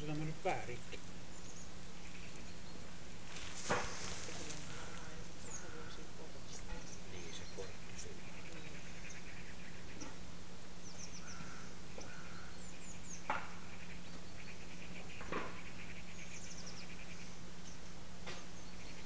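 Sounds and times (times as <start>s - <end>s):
small birds chirping faintly: 0.0s - 19.0s
steady low hum: 0.0s - 19.0s.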